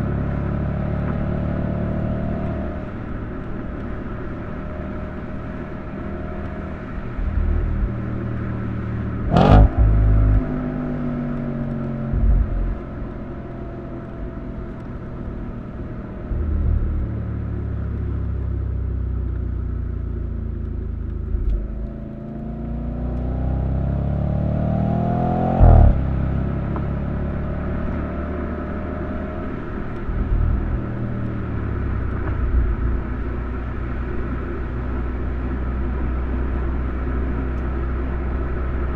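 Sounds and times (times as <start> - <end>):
car engine running: 0.0 - 38.9
low thumps: 7.2 - 8.0, 9.2 - 14.4, 16.3 - 17.2, 25.5 - 26.1.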